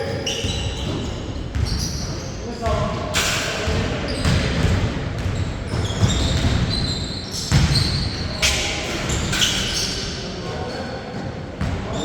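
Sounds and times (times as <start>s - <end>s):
sneakers squeaking on floor: 0.0s - 12.0s
basketball bouncing on court: 0.4s - 3.0s, 3.7s - 9.2s, 11.6s - 12.0s.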